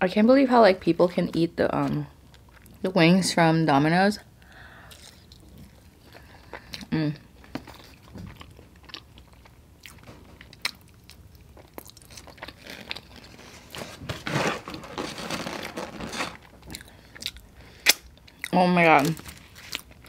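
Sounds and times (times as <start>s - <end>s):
person chewing food: 2.2s - 2.8s, 4.8s - 13.8s, 15.6s - 20.0s.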